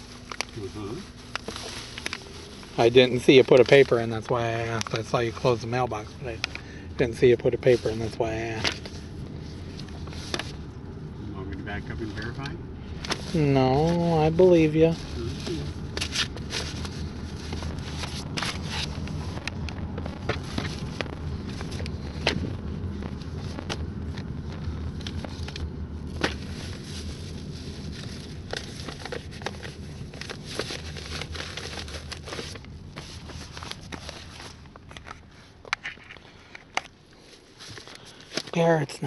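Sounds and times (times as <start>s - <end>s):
car cabin rumble: 0.0s - 35.6s
sharp clicks and pops: 15.9s - 26.4s.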